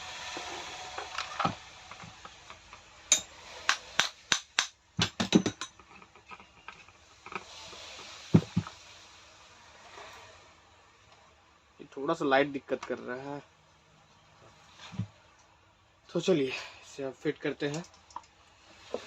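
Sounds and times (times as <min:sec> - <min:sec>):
metal part clicking and knocking: 0:02.2 - 0:07.4.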